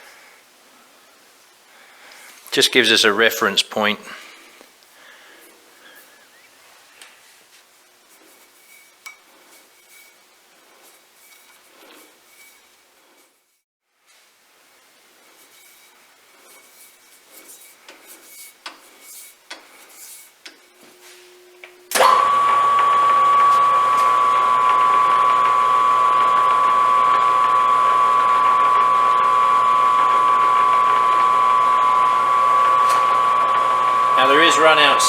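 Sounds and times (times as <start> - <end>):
metal lathe whining: 21.9 - 35.0.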